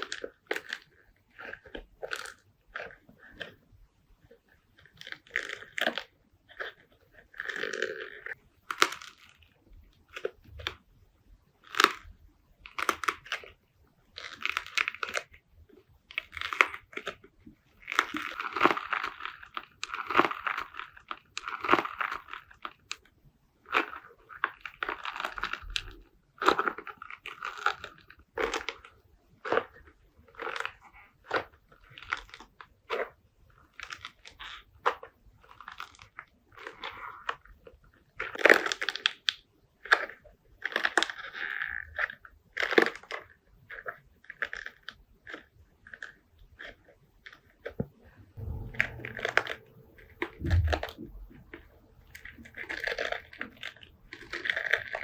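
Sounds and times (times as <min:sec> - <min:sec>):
slime crackling and popping: 0:48.4 - 0:55.0.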